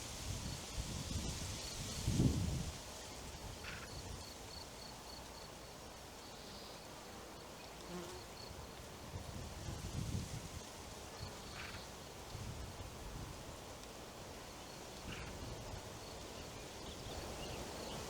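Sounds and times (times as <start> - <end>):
wind rumble on microphone: 0.0 - 4.3, 8.9 - 13.6.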